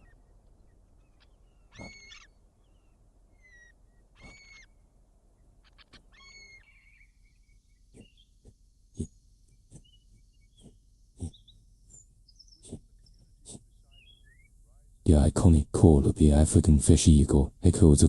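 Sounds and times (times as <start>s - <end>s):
eagle high calls: 0.0s - 4.8s, 5.6s - 14.8s
faint short chirps: 1.8s - 2.1s.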